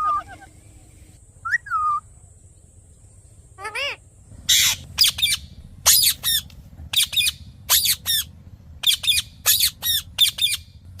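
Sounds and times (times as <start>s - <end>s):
parrot squawking: 3.6s - 10.7s.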